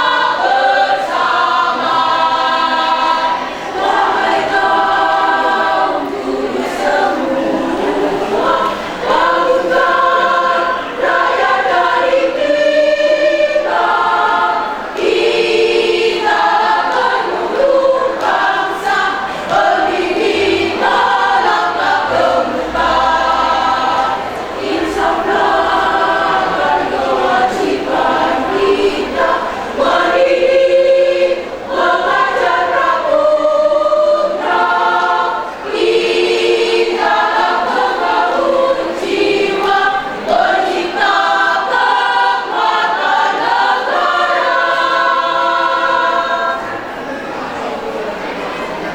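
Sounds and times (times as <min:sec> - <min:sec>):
choir singing: 0:00.0 - 0:48.9.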